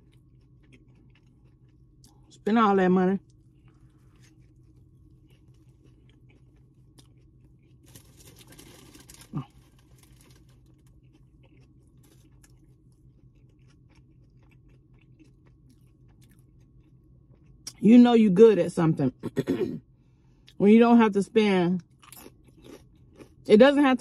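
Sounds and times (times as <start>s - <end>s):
soft chewing: 0.0s - 2.4s, 3.2s - 17.8s, 21.8s - 23.4s.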